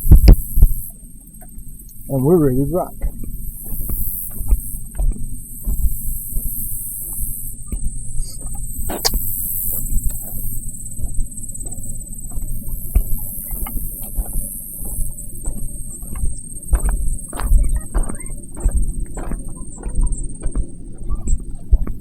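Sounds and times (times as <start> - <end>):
clothing rubbing on microphone: 3.6 - 18.8.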